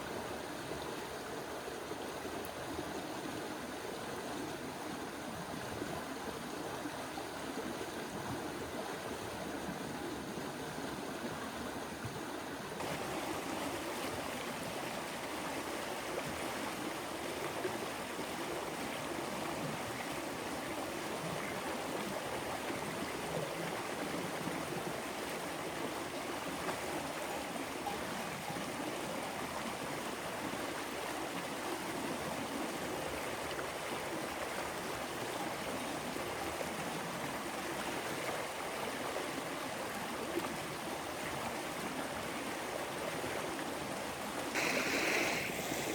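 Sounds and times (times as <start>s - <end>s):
stream rushing over rocks: 12.6s - 45.9s.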